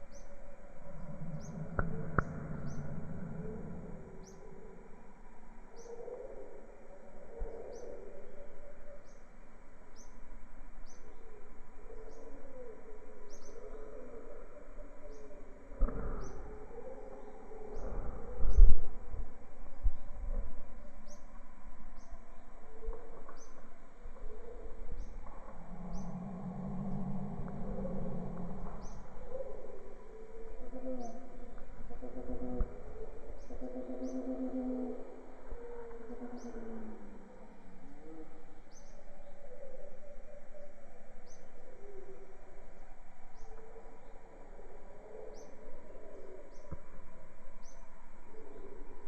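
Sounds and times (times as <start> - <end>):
bird chirping: 0.0 - 5.0, 5.7 - 19.2, 19.8 - 42.4
background hiss and hum: 0.0 - 49.0.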